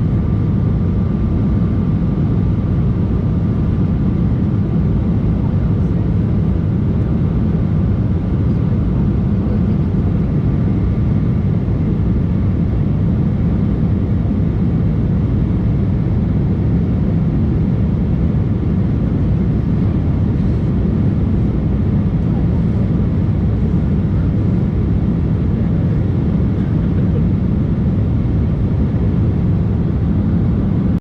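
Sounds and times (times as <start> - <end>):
faint steady whine: 0.0 - 31.0
jet cabin drone: 0.0 - 31.0.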